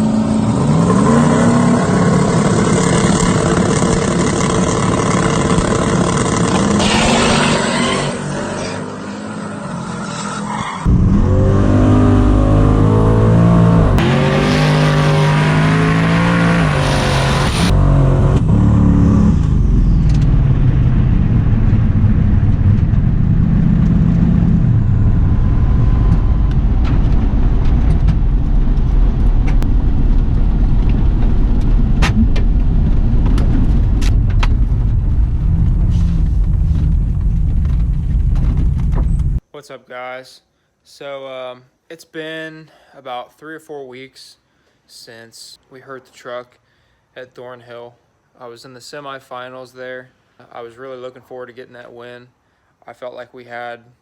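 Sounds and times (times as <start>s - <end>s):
race car engines revving: 0.0s - 28.2s.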